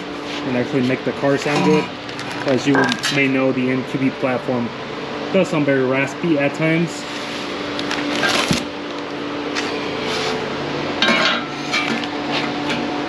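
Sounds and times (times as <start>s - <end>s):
steady hum: 0.0s - 13.0s
light clatter of metal parts: 1.4s - 3.3s
packaging rustling: 2.0s - 3.1s, 7.2s - 10.4s.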